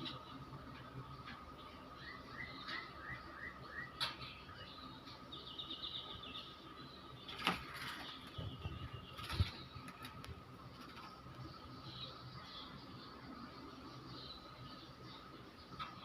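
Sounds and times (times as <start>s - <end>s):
bird chirps and trill: 0.0s - 10.2s.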